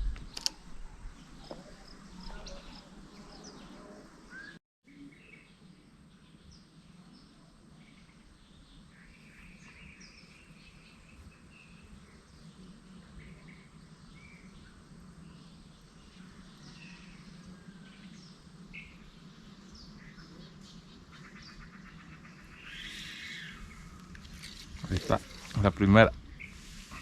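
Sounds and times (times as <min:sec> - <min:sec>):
faint background noise: 0:00.0 - 0:27.0
bird chirps: 0:19.7 - 0:25.6.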